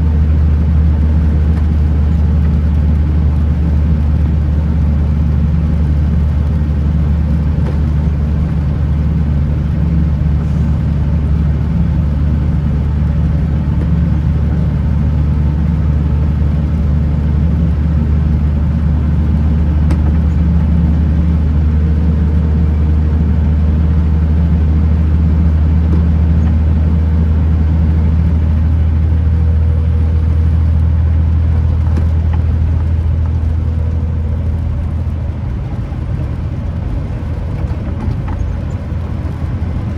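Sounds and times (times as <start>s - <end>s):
truck engine drone: 0.0s - 39.9s
tyre and road noise: 0.0s - 39.9s.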